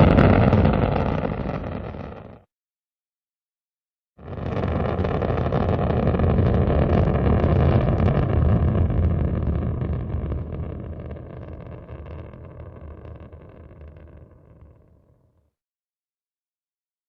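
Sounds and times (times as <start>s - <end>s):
rocket launch roar: 0.0s - 2.5s, 4.2s - 14.7s.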